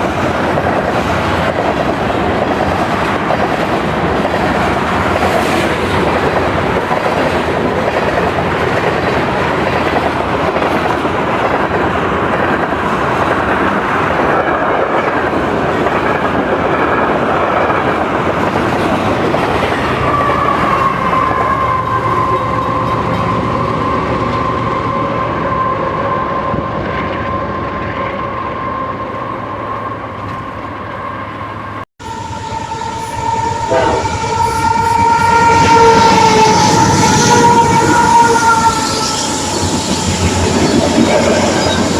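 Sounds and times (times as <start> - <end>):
train rail clatter: 0.0 - 24.6, 32.1 - 41.9
locomotive horn: 27.4 - 41.9
steady high-pitched tone: 32.0 - 41.9.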